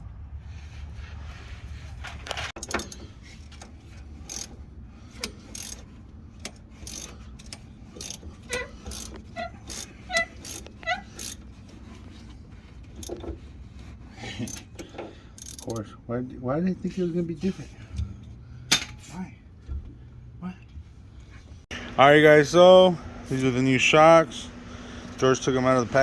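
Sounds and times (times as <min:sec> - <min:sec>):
ratchet wrench clicking: 0:04.2 - 0:11.5, 0:14.4 - 0:15.9.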